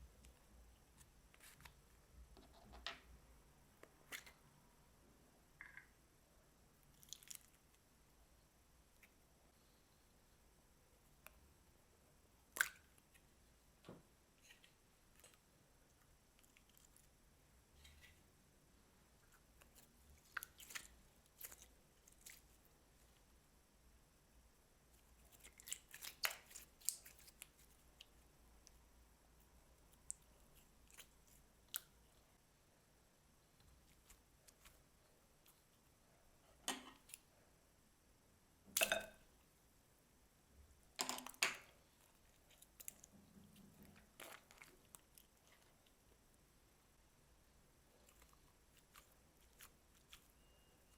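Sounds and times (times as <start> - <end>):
slime squelching: 19.1 - 23.3, 24.9 - 32.3, 41.7 - 46.4, 47.8 - 50.9.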